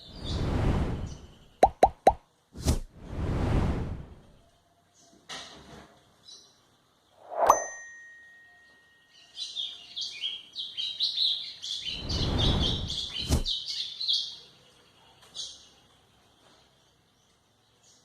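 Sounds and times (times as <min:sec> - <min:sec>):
low rumble: 0:02.7 - 0:04.4
bird singing high chattering notes: 0:07.2 - 0:14.4.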